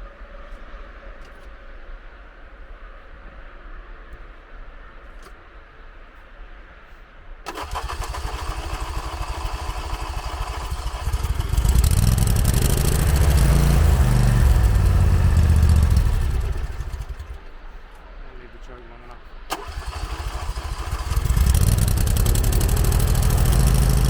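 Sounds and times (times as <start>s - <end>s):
mower engine cranking and running: 7.5s - 17.6s, 19.5s - 24.0s.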